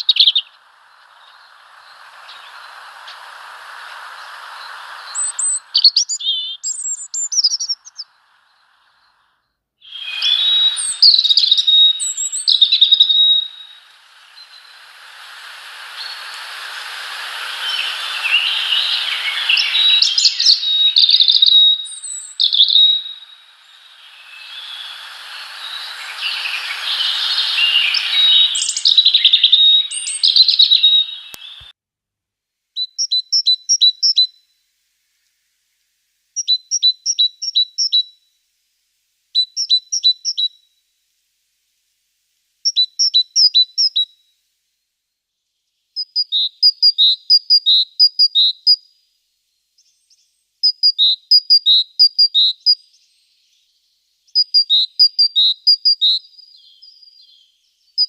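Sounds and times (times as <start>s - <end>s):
small birds chirping: 0.0s - 31.7s, 32.8s - 34.3s, 36.4s - 38.1s, 39.4s - 40.6s, 49.8s - 58.0s.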